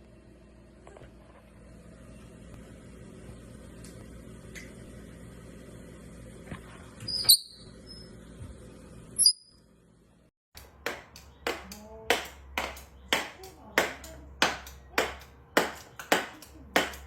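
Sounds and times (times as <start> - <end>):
parrot chirping: 7.1 - 8.1, 9.2 - 9.6.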